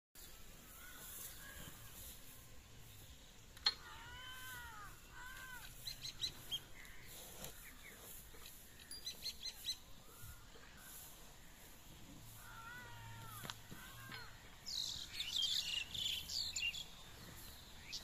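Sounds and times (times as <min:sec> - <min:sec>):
birds calling: 0:00.2 - 0:18.0.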